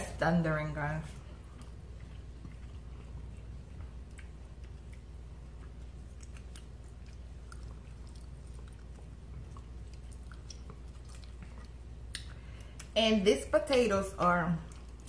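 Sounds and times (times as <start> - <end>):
steady low hum: 0.0 - 15.0
people chewing: 1.1 - 13.0.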